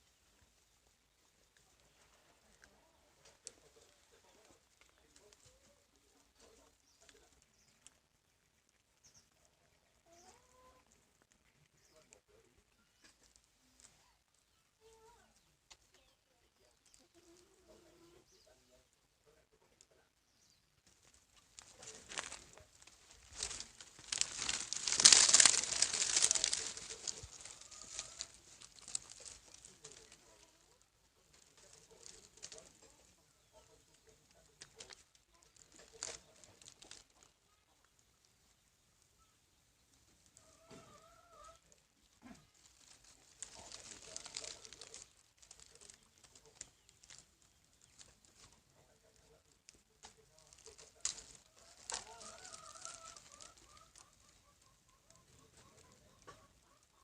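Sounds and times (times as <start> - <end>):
material crinkling and rustling: 20.8 - 33.1, 33.8 - 37.5, 42.0 - 56.3.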